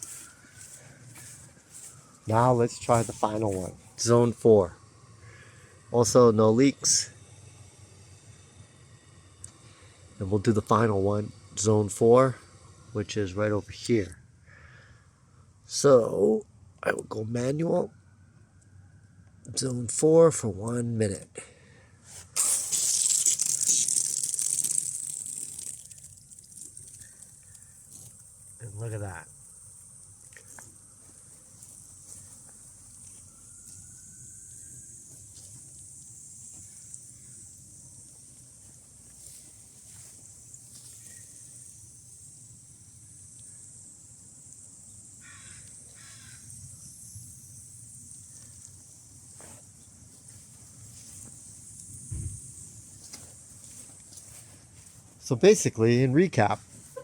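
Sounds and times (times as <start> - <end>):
steady high hiss: 0.0 - 18.0, 22.0 - 57.0
water rushing through irrigation line: 22.2 - 32.9
caw-like bird calls: 45.2 - 46.4.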